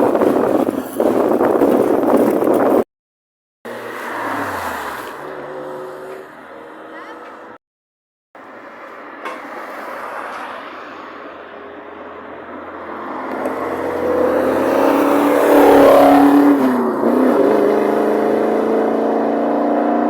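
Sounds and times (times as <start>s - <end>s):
sports car engine accelerating: 12.8s - 20.0s.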